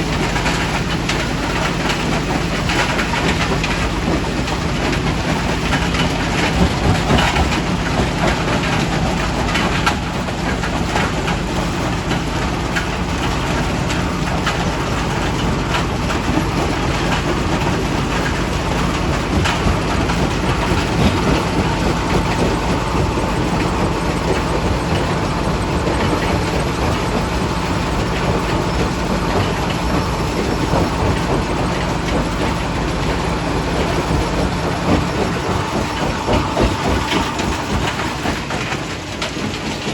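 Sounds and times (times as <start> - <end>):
rock crusher machine hum: 0.0 - 39.9.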